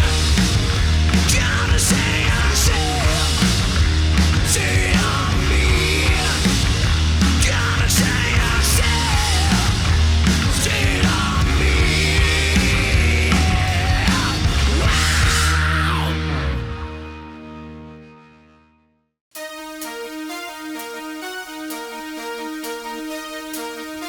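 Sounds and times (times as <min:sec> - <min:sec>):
hard rock band playing: 0:00.0 - 0:17.9.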